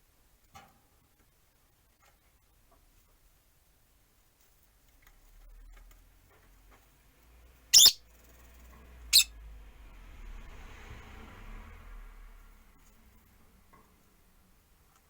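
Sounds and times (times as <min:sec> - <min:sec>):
lovebird calls: 0:07.8 - 0:08.0.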